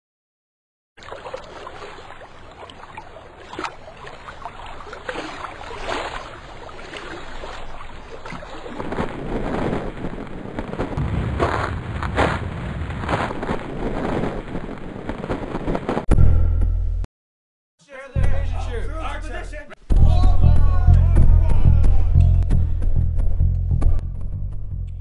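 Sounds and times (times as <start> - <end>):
water splashes: 1.0 - 14.7
waves washing: 1.0 - 15.2
wind: 1.0 - 16.1.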